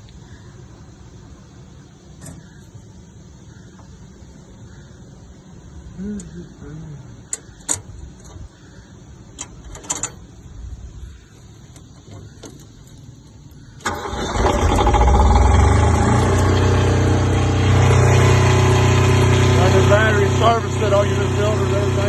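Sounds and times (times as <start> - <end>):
diesel engine starting and idling: 13.8 - 22.0.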